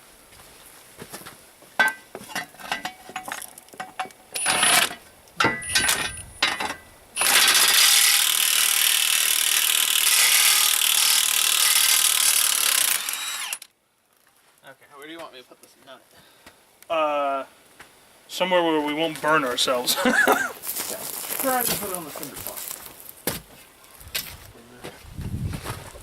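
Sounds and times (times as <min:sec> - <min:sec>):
metal clanks and scraping: 0:01.8 - 0:06.9
loud steady power tool: 0:04.4 - 0:05.0, 0:07.2 - 0:13.7.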